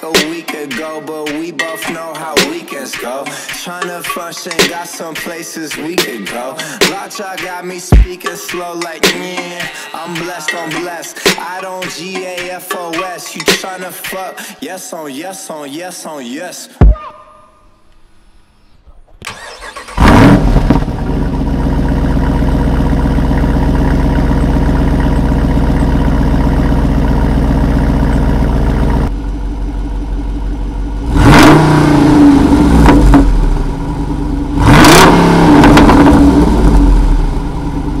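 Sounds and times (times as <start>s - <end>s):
car engine starting and idling: 19.1s - 38.0s
car engine revving: 19.3s - 38.0s.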